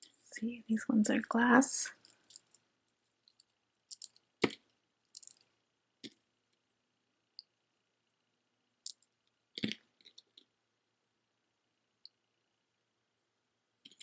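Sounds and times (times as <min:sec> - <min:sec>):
jewelry clinking and rattling: 0:01.9 - 0:05.5.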